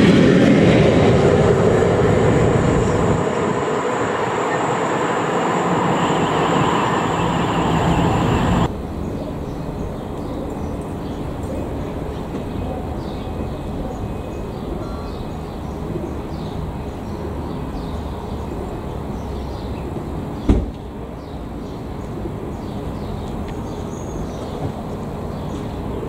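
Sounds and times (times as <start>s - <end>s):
freight train low rumble: 0.0s - 26.0s
sharp thump: 20.5s - 20.8s.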